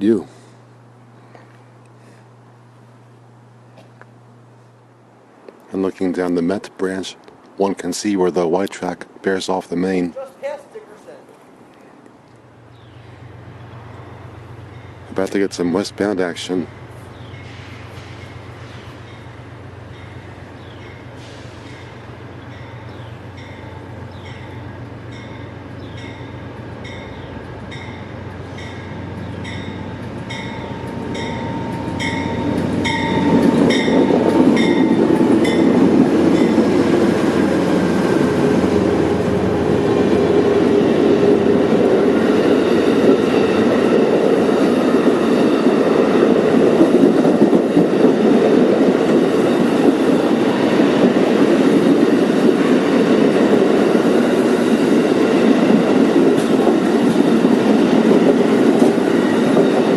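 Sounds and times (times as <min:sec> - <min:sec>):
train rumble passing: 0:00.0 - 0:59.9
bell ringing: 0:29.5 - 0:35.7.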